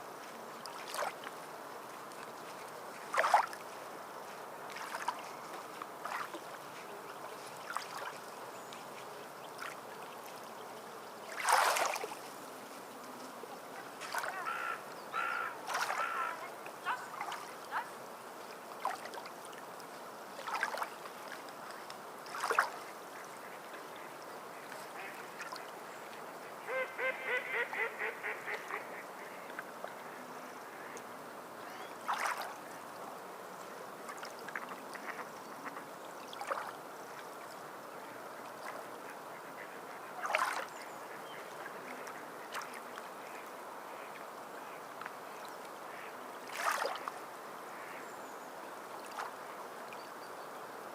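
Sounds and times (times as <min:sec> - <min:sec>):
water lapping and splashing: 0:00.0 - 0:26.7, 0:28.5 - 0:48.1, 0:48.7 - 0:50.1
bird calls: 0:14.0 - 0:17.4.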